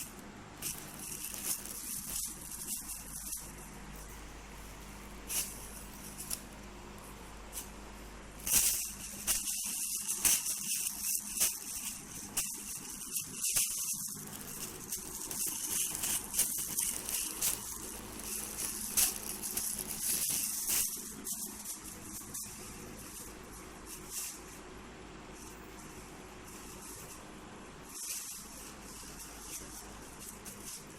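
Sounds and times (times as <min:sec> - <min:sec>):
plastic crinkling and rustling: 0:00.0 - 0:07.8, 0:08.4 - 0:24.5.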